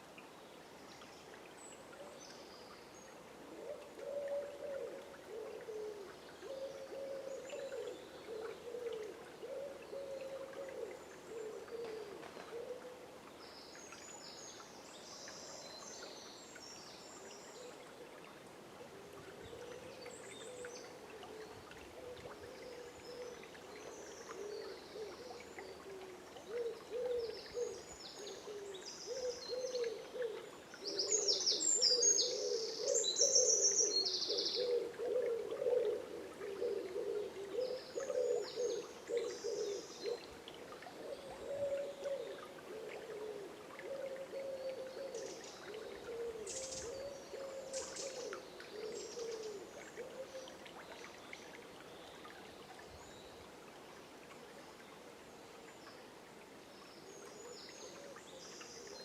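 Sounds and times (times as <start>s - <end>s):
flowing water hiss: 0.0s - 59.0s
low hooting bird calls: 22.0s - 40.3s, 41.0s - 50.6s.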